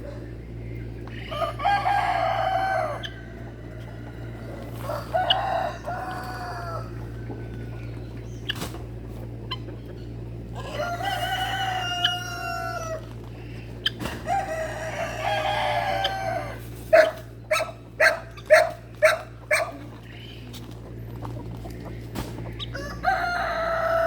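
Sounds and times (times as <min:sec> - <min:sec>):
rooster crowing: 0:01.2 - 0:08.0, 0:10.6 - 0:13.1, 0:14.1 - 0:19.2, 0:22.7 - 0:24.0.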